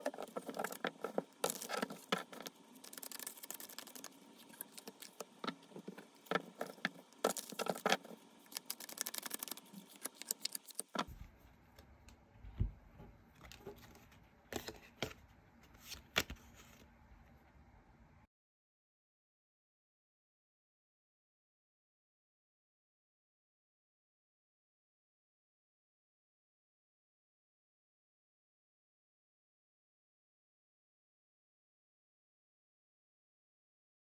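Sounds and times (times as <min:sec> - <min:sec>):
cards being shuffled: 0:00.0 - 0:11.1, 0:15.7 - 0:16.8.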